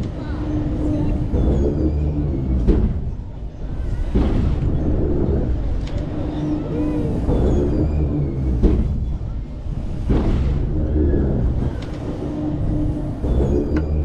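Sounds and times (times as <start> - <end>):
faint ride music: 0.0 - 14.0
ride rumble: 0.0 - 14.0
wind buffeting microphone: 0.0 - 14.0.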